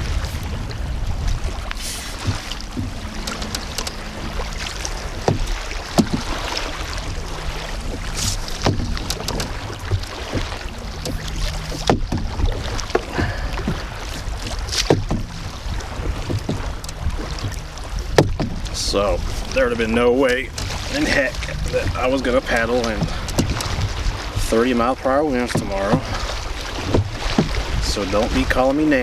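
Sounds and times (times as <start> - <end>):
water splashing: 0.0 - 29.0
wind rumble on microphone: 0.0 - 29.0
knocks against canoe: 1.8 - 4.0, 5.2 - 6.6, 7.7 - 18.8, 22.6 - 28.6.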